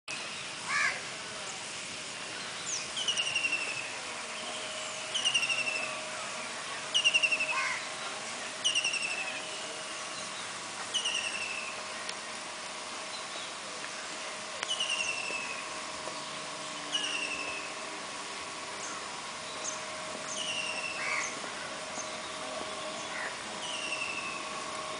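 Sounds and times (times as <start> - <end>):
rising whistled bird calls: 14.7 - 15.6, 19.6 - 21.4, 22.0 - 24.5.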